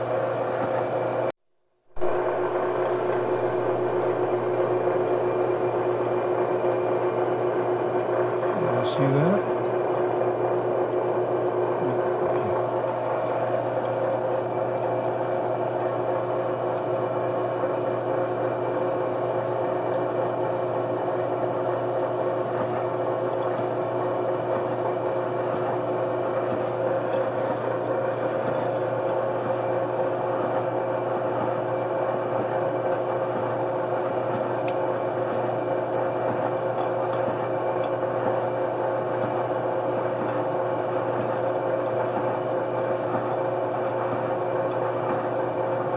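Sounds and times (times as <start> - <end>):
machine tool motor hum: 1.9 - 16.2.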